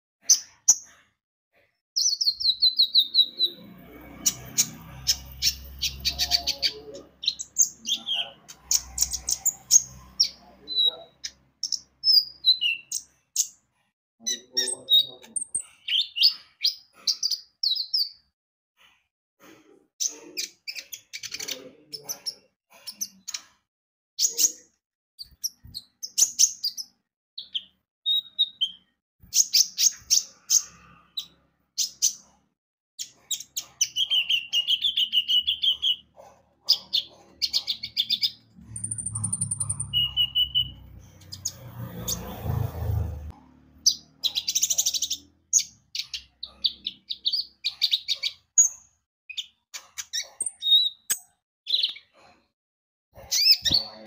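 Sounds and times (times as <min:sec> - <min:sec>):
sunbird chirping and trilling: 0:02.0 - 0:13.6, 0:25.2 - 0:32.3, 0:33.0 - 0:36.1, 0:36.7 - 0:42.7, 0:43.8 - 0:52.2, 0:53.2 - 0:54.0.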